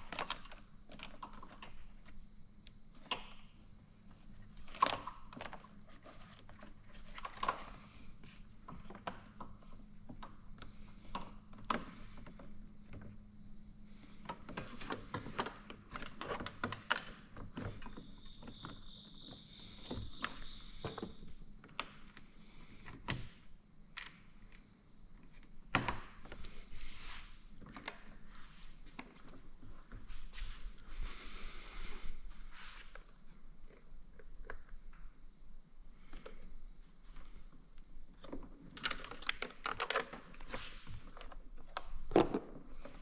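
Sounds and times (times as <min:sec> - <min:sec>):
faint steady hum: 0:00.0 - 0:43.0
tools clicking and knocking: 0:38.2 - 0:40.5.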